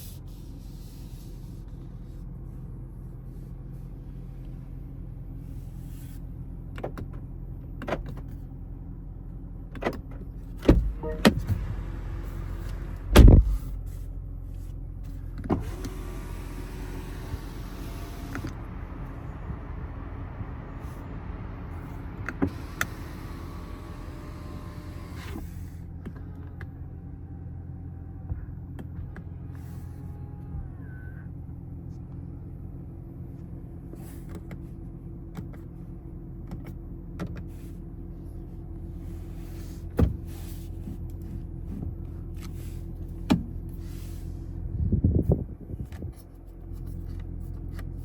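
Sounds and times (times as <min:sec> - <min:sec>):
low hum: 0:10.6 - 0:15.1
small electric motor whining: 0:22.5 - 0:25.6.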